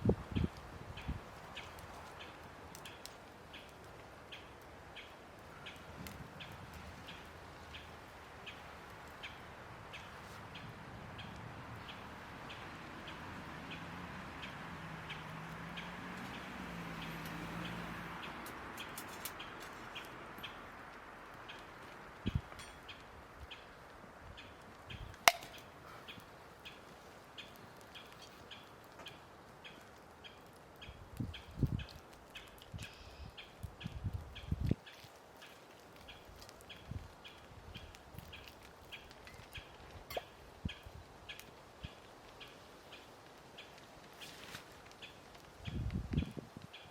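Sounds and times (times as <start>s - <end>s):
faint outdoor background noise: 0.0s - 46.9s
sharp snap: 25.2s - 25.7s.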